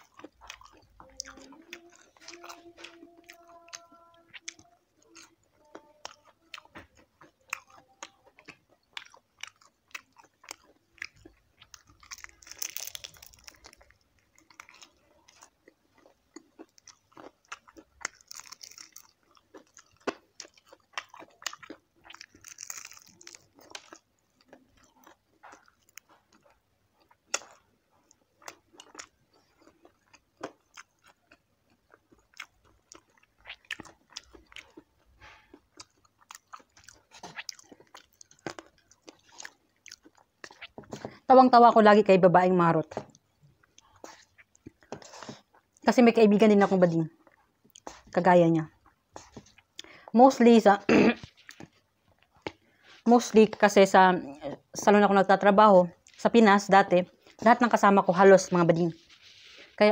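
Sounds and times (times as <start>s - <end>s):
crunchy chewing: 0.0s - 41.2s, 43.0s - 45.8s, 51.2s - 53.1s.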